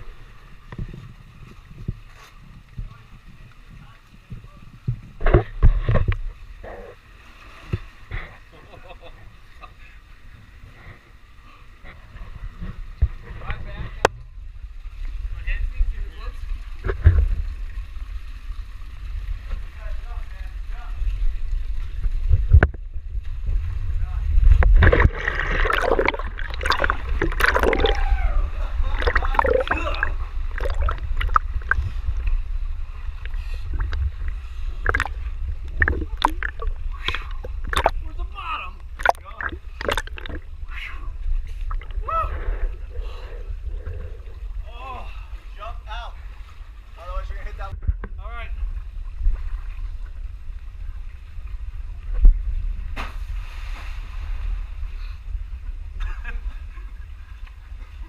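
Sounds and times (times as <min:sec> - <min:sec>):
steady low rumble: 0:18.6 - 0:53.2
splashes from wading in water: 0:24.8 - 0:28.1, 0:28.8 - 0:32.0, 0:33.3 - 0:38.1.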